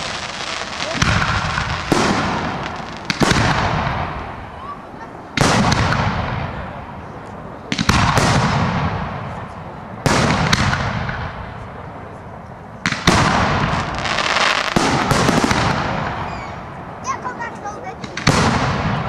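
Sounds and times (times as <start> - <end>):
fireworks crackling fizz: 0.0 - 4.2
fireworks bangs: 0.0 - 11.8, 12.8 - 19.0.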